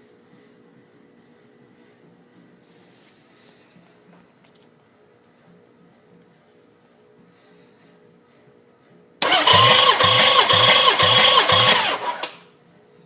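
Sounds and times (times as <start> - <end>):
starter motor cranking: 9.2 - 12.5.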